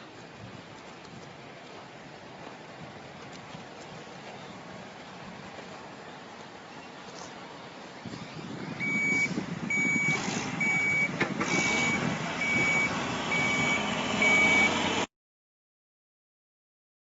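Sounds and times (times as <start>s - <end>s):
construction machine rumble: 7.1s - 15.1s
reversing alarm beeping: 8.4s - 14.8s.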